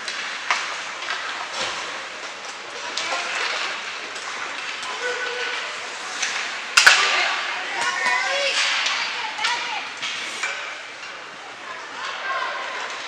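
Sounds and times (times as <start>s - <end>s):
hockey sticks and puck clacking: 0.0s - 13.0s
skates hissing on ice: 9.8s - 10.7s.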